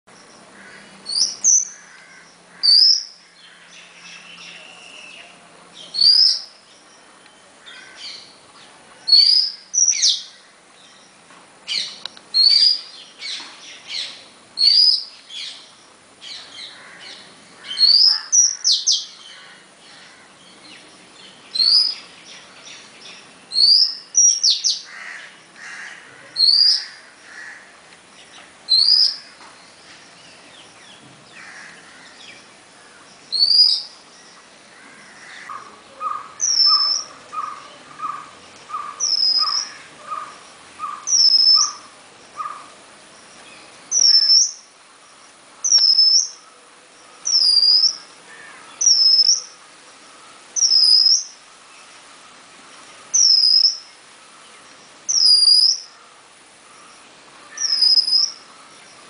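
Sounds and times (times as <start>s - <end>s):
songbird upward-sweeping call: 0.1s - 7.4s, 8.0s - 19.4s, 20.5s - 24.9s, 26.4s - 26.9s, 28.2s - 31.0s, 33.2s - 34.5s, 35.5s - 42.7s, 43.3s - 44.7s, 45.6s - 46.5s, 47.2s - 48.1s, 48.7s - 49.6s, 50.5s - 51.4s, 53.1s - 54.0s, 55.1s - 56.0s, 56.8s - 59.0s.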